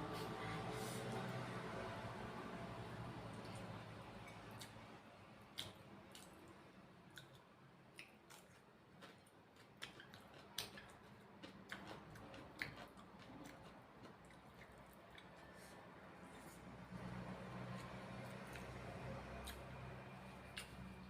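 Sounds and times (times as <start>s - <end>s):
person chewing food: 5.6s - 6.4s, 7.1s - 21.0s.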